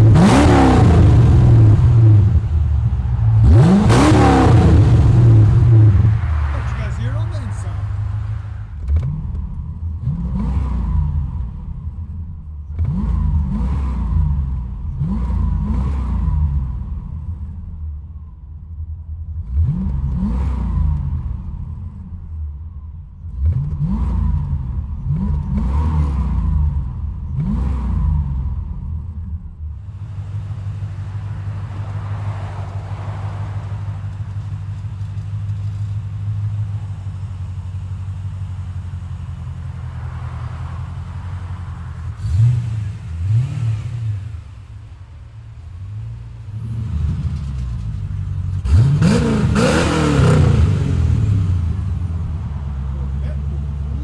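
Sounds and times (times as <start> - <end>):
car engine revving: 0.0 - 11.9, 23.3 - 29.2, 29.8 - 54.0
car engine rumbling: 0.0 - 54.0.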